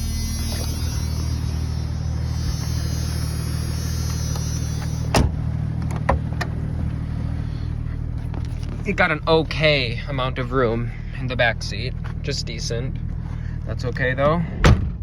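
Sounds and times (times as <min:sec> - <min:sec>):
heater fan blowing: 0:00.0 - 0:07.8
car engine idling: 0:00.0 - 0:15.0.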